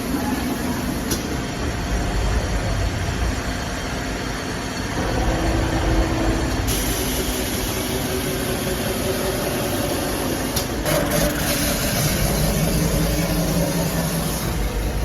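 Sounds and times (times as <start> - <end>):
polishing machine working steel: 5.0 - 15.0.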